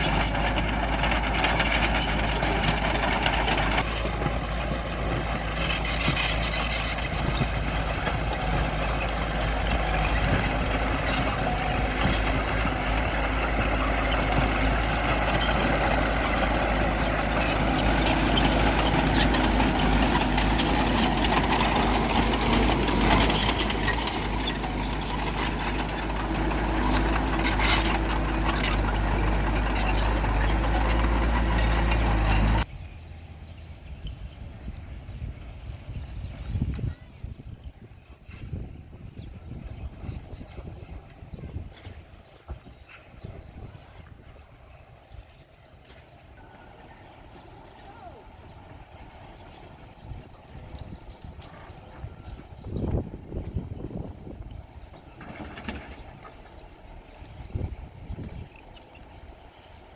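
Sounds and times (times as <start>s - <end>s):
metallic squeals and clanks: 0.0s - 32.7s
diesel engine under load: 0.0s - 59.9s.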